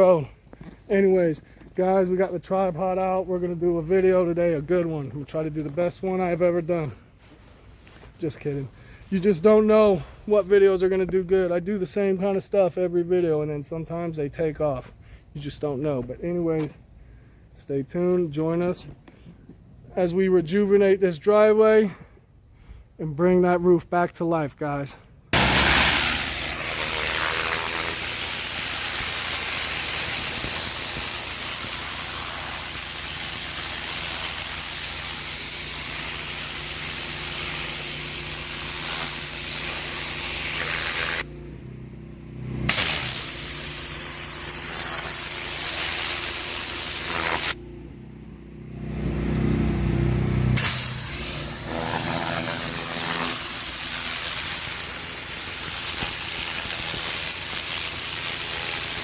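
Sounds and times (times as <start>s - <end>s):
pressure washer spraying water: 25.4s - 41.4s, 42.7s - 47.6s, 50.6s - 59.0s
pump engine running: 25.4s - 41.6s, 42.2s - 47.9s, 49.1s - 59.0s.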